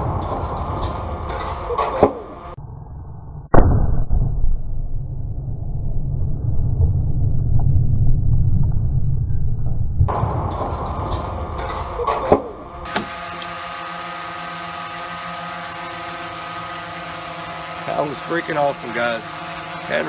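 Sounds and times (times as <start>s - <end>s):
muffled explosion with rumble: 3.5s - 11.6s.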